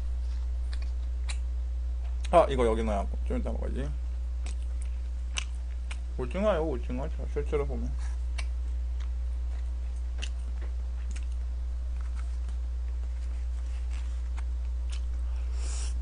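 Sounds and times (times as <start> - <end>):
steady low hum: 0.0 - 16.0
chewing and mouth sounds: 0.2 - 2.4, 4.4 - 6.1, 8.0 - 16.0.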